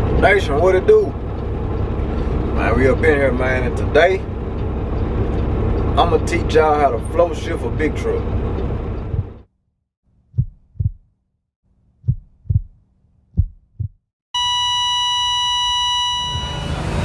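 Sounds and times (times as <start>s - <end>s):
heartbeat thumps: 9.1s - 9.4s, 10.3s - 11.1s, 12.0s - 14.0s
heart monitor flatline beep: 14.4s - 16.7s.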